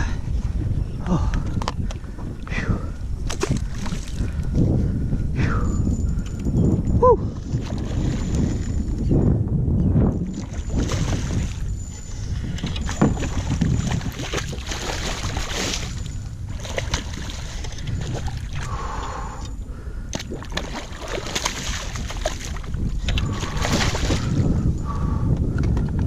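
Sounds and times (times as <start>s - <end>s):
wind buffeting microphone: 0.0s - 26.0s
water slapping against a hull: 3.2s - 4.6s, 7.4s - 8.7s, 10.2s - 11.7s, 12.5s - 18.7s, 20.1s - 24.6s.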